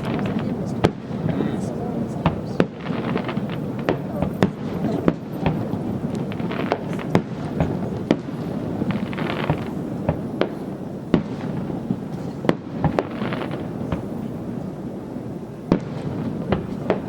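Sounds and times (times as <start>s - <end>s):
rumble of echoing booms: 0.0s - 13.1s
hissing crackle of fireworks: 0.0s - 17.0s.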